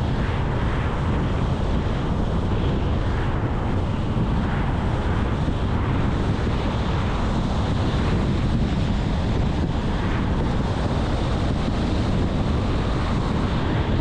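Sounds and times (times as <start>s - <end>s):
wind noise: 0.0s - 14.0s.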